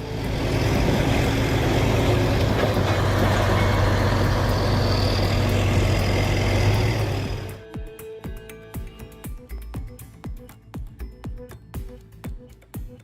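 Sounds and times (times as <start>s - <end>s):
diesel engine running under load: 0.0s - 7.6s.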